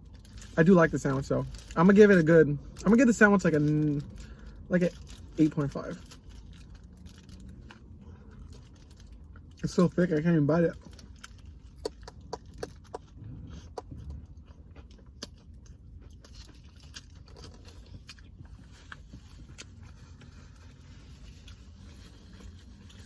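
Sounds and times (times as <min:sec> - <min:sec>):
low steady hum: 0:00.0 - 0:23.0
person chewing food: 0:10.8 - 0:23.0
wet mouth clicks and smacks: 0:11.6 - 0:14.2.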